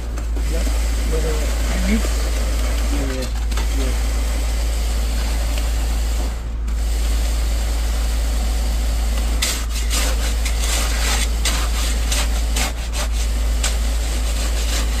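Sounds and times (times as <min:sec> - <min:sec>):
pump engine rumbling: 0:00.0 - 0:15.0
rough scraping: 0:09.4 - 0:15.0.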